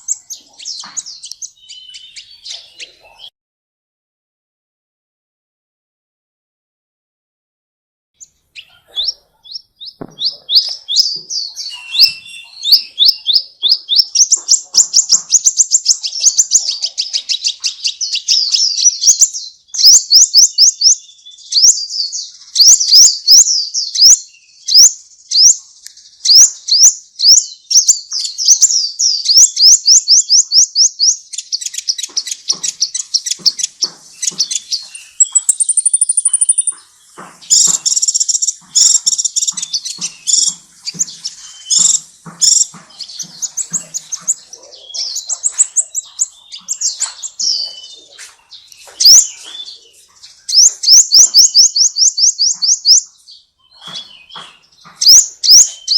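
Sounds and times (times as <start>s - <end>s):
songbird chirping rapidly: 0.0s - 3.3s, 8.2s - 55.9s
high drawn-out bird whistle: 9.9s - 14.3s, 35.1s - 36.7s.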